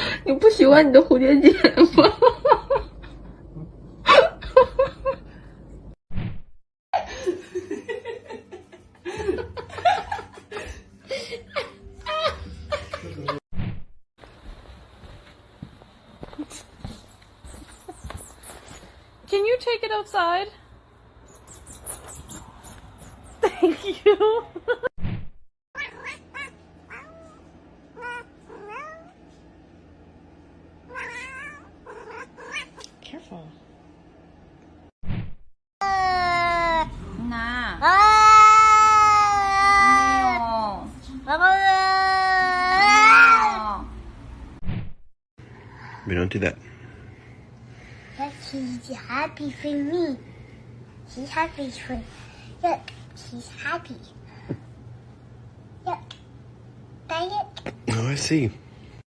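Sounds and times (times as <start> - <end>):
woman laughing: 1.4 - 3.2, 4.0 - 5.3, 7.0 - 13.4, 23.4 - 24.9
cat meowing: 28.0 - 29.1, 30.9 - 32.8.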